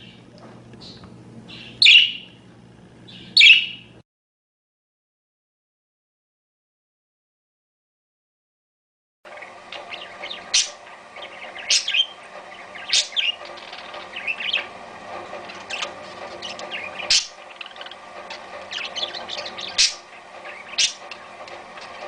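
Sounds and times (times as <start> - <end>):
parakeets chirping and chattering: 0.8 - 2.3, 3.1 - 3.9, 9.3 - 22.0.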